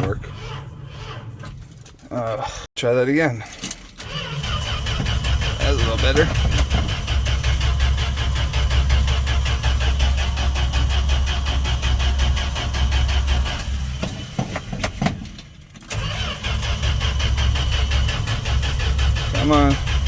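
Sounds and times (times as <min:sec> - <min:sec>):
engine running unevenly: 0:04.3 - 0:15.3, 0:15.9 - 0:20.0.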